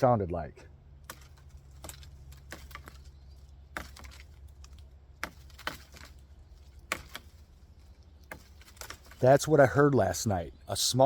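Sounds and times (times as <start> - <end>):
stick tapping sapling trunk: 1.0 - 9.4.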